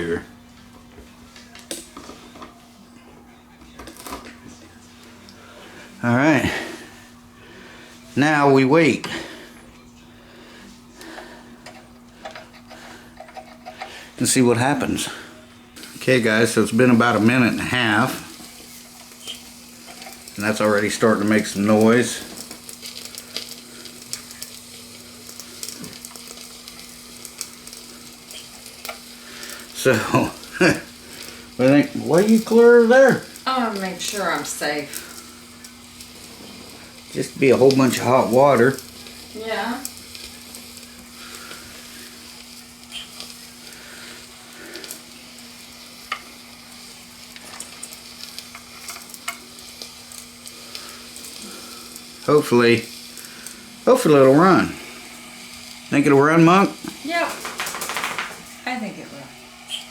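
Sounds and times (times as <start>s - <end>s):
faint steady hum: 0.0s - 56.0s
boiler sizzling and crackling: 0.0s - 59.9s
small ticks and pops: 57.3s - 58.4s.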